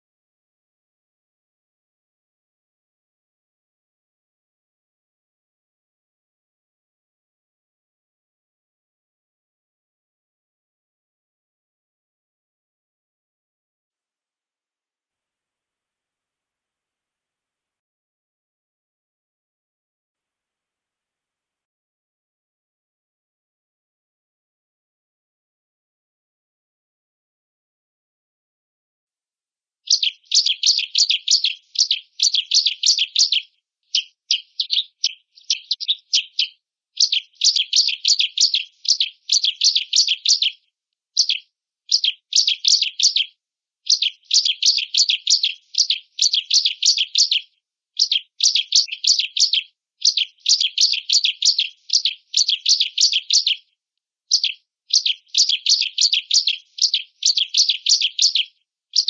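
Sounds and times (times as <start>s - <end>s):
bird chattering trills: 29.9s - 40.6s, 41.2s - 43.3s, 43.9s - 47.4s, 48.0s - 53.6s, 54.3s - 59.0s.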